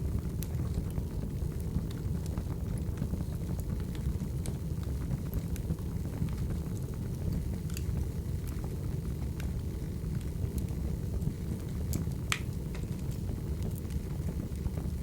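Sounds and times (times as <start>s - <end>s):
burning wood crackling and popping: 0.0s - 15.0s
fire flames rumbling: 0.0s - 15.0s.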